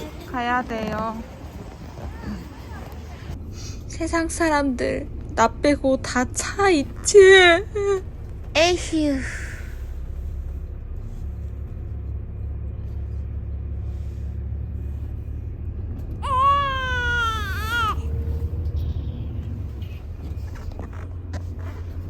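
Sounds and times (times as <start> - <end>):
person whining: 16.2 - 18.2.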